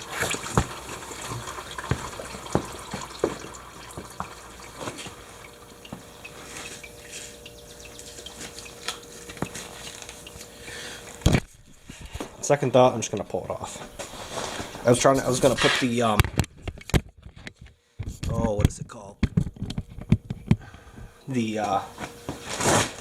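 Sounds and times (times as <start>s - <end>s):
oil trickling into a pan: 0.0s - 11.2s
oil dripping: 0.0s - 12.4s.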